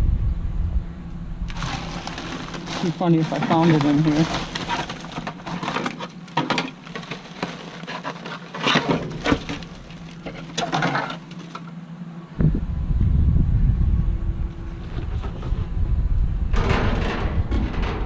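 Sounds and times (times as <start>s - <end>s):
low rumble: 0.0s - 5.8s, 12.3s - 18.0s
items clattering and rustling: 1.5s - 11.8s, 16.5s - 18.0s.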